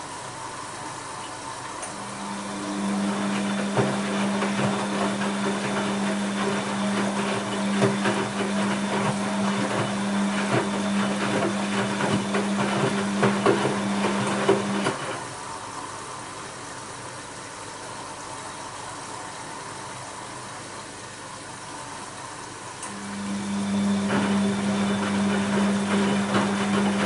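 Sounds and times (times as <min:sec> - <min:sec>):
washing machine motor hum: 0:00.0 - 0:27.0
wet laundry sloshing in drum: 0:02.6 - 0:15.3, 0:23.8 - 0:27.0.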